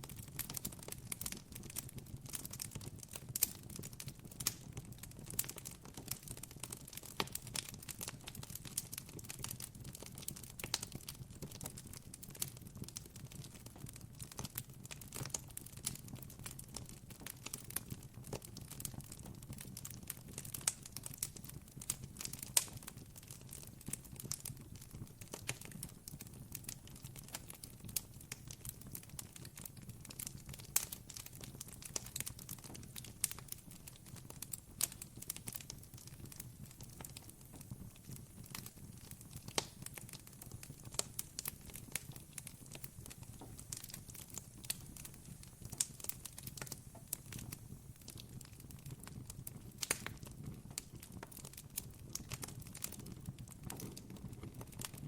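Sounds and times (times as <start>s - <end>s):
burning wood popping: 12.4s - 55.0s
low rumble of flames: 21.8s - 51.0s.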